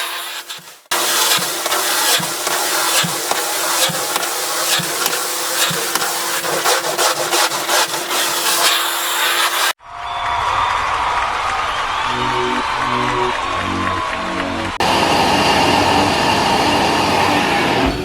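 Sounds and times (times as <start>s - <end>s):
carpet cleaning machine motor: 0.0s - 9.8s, 14.8s - 18.0s
rhythmic rubbing on carpet: 0.0s - 9.8s.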